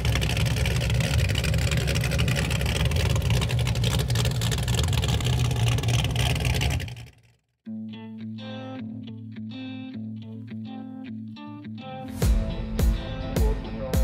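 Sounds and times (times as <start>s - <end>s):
car engine rumbling: 0.0s - 7.5s
electric guitar music: 7.7s - 14.0s.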